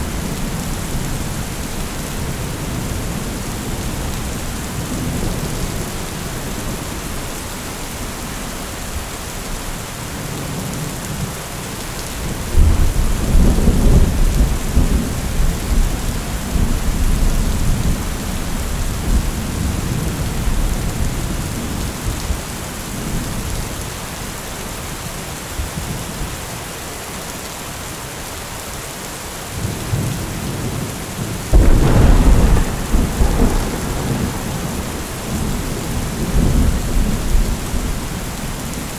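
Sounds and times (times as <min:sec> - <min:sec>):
heavy rain falling: 0:00.0 - 0:38.9
loud thunder clap: 0:31.5 - 0:38.4
rolling thunder rumble: 0:31.5 - 0:38.9.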